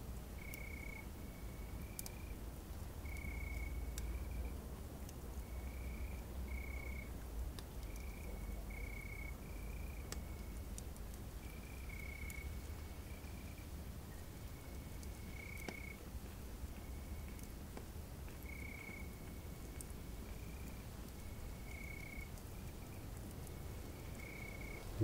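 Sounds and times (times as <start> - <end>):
campfire crackling: 0.0 - 25.0
crickets chirping: 20.4 - 25.0.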